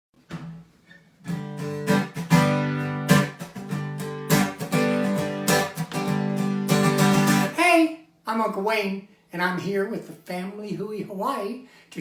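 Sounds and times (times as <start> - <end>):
acoustic guitar strumming chords: 0.3 - 7.6.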